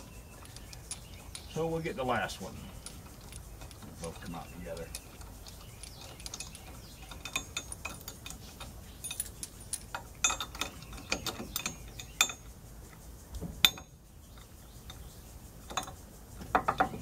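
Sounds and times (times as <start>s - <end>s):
hand tools clicking and clinking: 0.0s - 12.6s.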